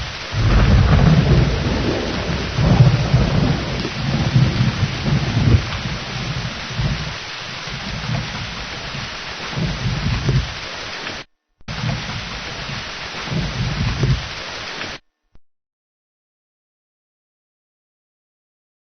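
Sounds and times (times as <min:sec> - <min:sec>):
thunder rumbles: 0:00.0 - 0:10.7, 0:11.7 - 0:14.4
heavy rain: 0:00.0 - 0:15.0.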